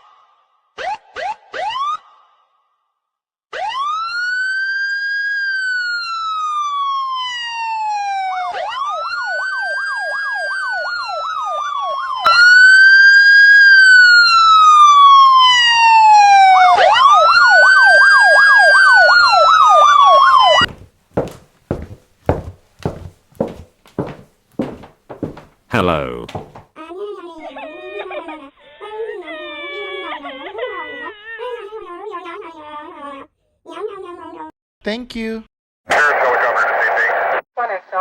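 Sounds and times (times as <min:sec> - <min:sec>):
electronic police siren: 0:07.8 - 0:20.6
sharp taps: 0:26.3 - 0:26.6.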